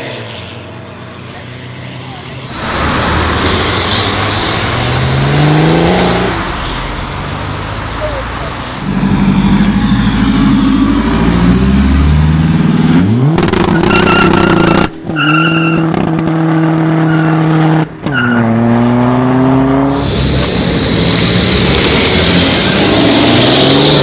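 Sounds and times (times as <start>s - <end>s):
diesel car engine accelerating: 0.0s - 24.0s
car rush with rising whistle: 2.5s - 7.1s, 8.7s - 12.0s, 12.9s - 24.0s.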